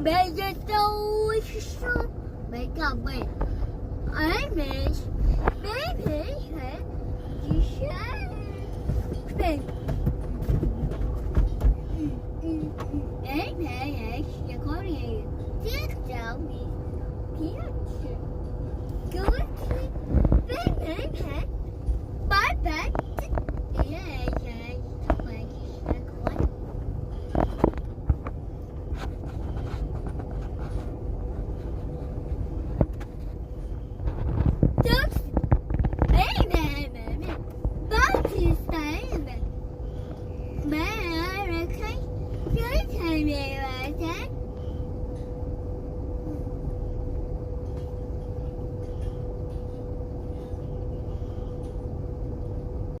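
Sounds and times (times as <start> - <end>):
constant hum: 0.0 - 53.0
moving train rumble: 0.0 - 53.0.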